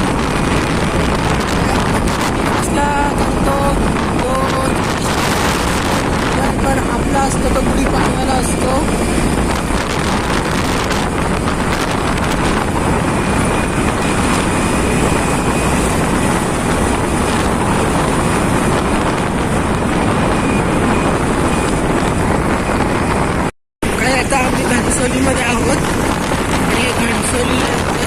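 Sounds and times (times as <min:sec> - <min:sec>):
motorcycle wind and road noise: 0:00.0 - 0:28.0.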